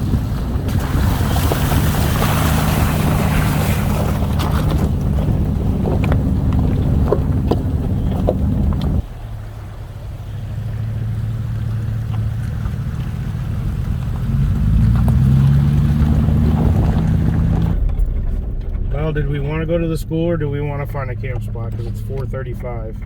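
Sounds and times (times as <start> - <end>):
vehicle engine and road noise: 0.0 - 23.0
light knocks and rattles: 1.6 - 9.3.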